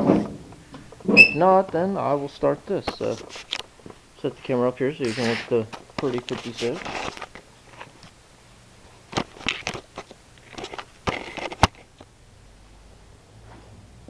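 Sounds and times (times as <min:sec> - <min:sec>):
camera being handled: 0:09.2 - 0:11.9.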